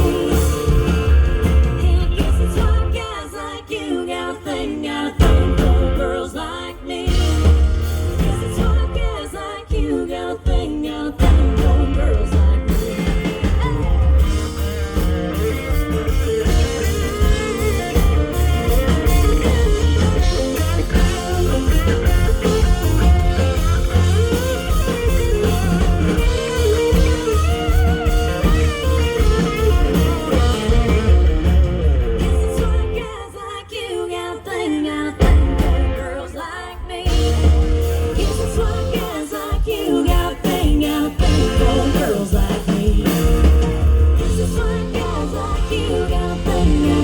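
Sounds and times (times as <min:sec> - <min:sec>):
electric guitar: 0:00.0 - 0:03.2, 0:11.2 - 0:33.3, 0:35.2 - 0:47.0
bass and drums: 0:00.0 - 0:03.4, 0:05.1 - 0:33.4, 0:35.2 - 0:47.0
live band music: 0:00.0 - 0:03.6, 0:04.4 - 0:33.2, 0:35.2 - 0:47.0.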